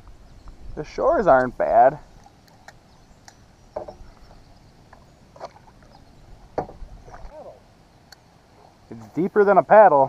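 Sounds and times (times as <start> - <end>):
kayak paddle splashing: 1.4 - 7.8
paddle knocks: 3.8 - 4.4, 6.5 - 7.3.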